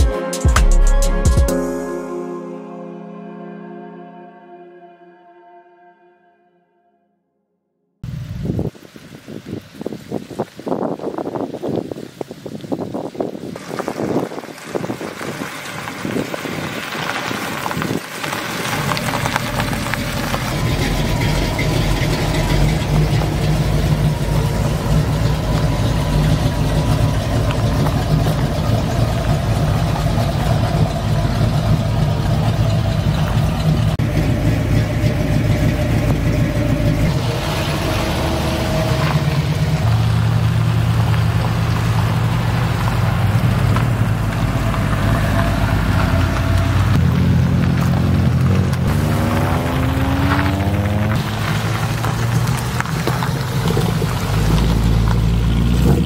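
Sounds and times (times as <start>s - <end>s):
car engines rumbling past: 13.5s - 56.0s.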